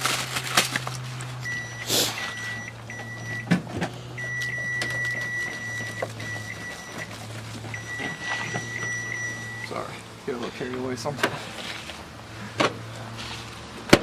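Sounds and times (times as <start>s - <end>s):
microwave oven humming: 0.0s - 10.3s
high steady tone: 7.7s - 9.9s.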